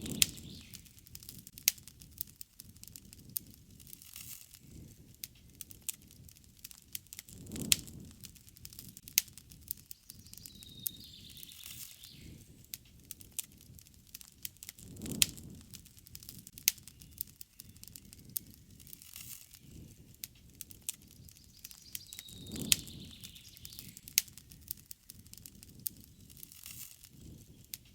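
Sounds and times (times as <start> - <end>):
campfire crackling and popping: 0.0 - 27.9
rushing flame: 0.0 - 27.9.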